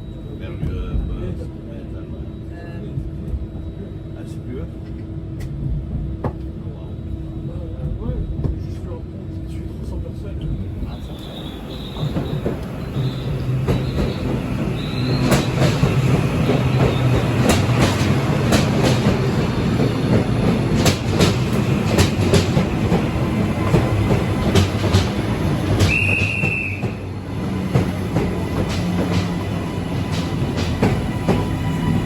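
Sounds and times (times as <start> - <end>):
train wheels rumbling on rails: 0.1 - 32.0
high wheel squeals: 10.7 - 17.8.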